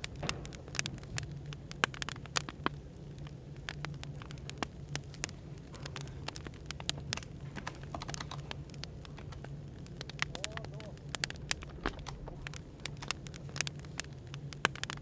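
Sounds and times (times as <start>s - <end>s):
firewood crackling and popping: 0.0s - 15.0s
low background hum: 0.0s - 15.0s.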